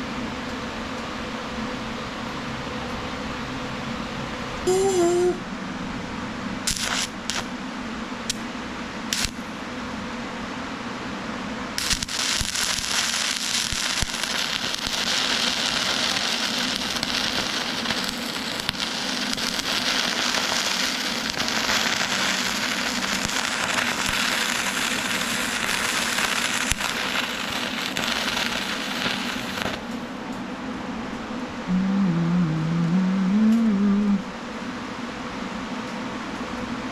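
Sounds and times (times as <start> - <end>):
steady low hum: 0.0 - 36.9
welder arc crackling: 6.7 - 7.5, 8.3 - 8.5, 9.1 - 9.4, 11.8 - 30.1.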